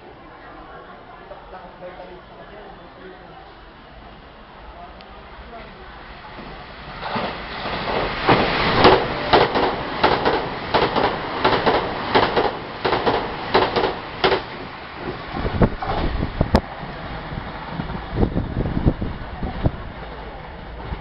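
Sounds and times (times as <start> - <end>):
train wheels clacking over rail joints: 6.4 - 16.2.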